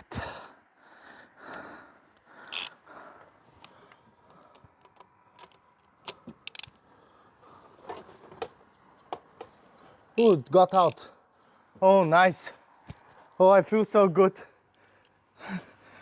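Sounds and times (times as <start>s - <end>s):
ratchet wrench clicking: 2.5s - 2.7s, 6.4s - 6.7s, 10.2s - 11.0s.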